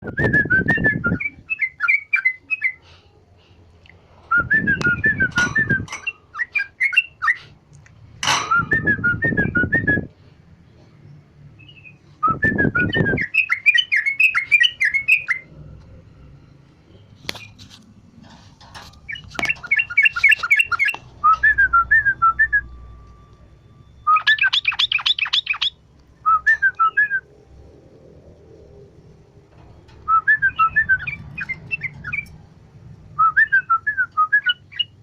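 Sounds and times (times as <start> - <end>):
bird singing whistled notes: 0.0 - 2.8, 11.6 - 15.5, 19.1 - 23.3, 24.0 - 27.3, 30.1 - 32.3, 33.2 - 35.0.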